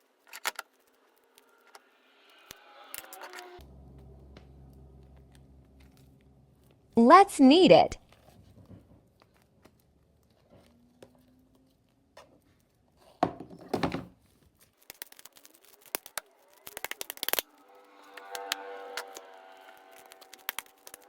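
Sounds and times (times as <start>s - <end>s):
slime squishes: 14.2s - 17.4s
slime crackling pops: 14.8s - 17.4s, 20.0s - 21.0s.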